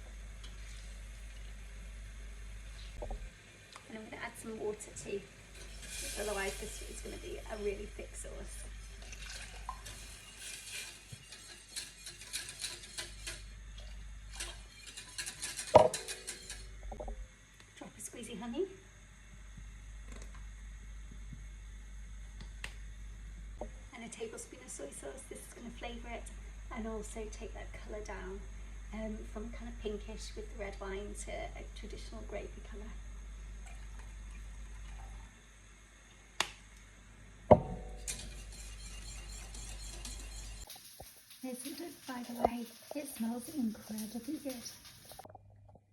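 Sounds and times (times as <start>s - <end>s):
low background hum: 0.0s - 45.9s
utensil scraping saucepan: 5.5s - 16.8s, 38.0s - 45.3s
kitchenware knocking: 15.7s - 16.4s.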